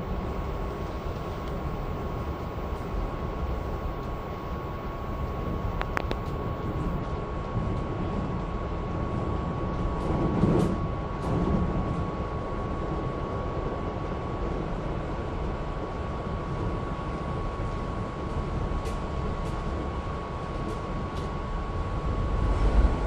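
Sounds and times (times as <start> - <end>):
thin whine: 0.0 - 7.0
train rumble: 0.0 - 7.0, 21.8 - 23.0
sharp clicks: 0.1 - 7.0.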